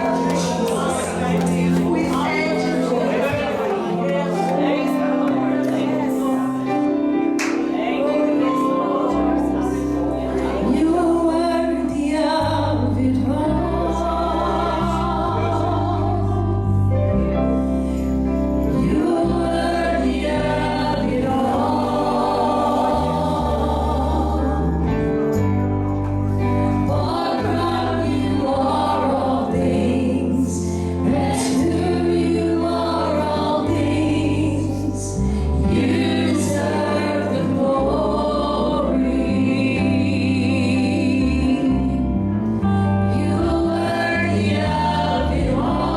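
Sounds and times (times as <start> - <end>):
gospel choir singing: 0.0 - 45.9
steady bass line: 9.1 - 45.9.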